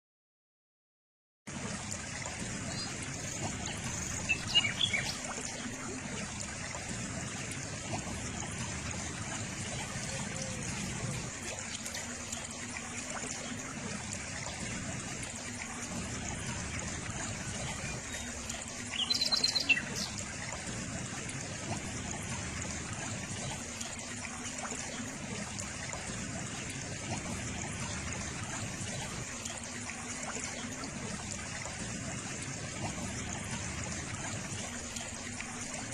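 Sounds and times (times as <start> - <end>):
water trickling: 1.5 - 35.9
bird chirps: 18.9 - 20.1.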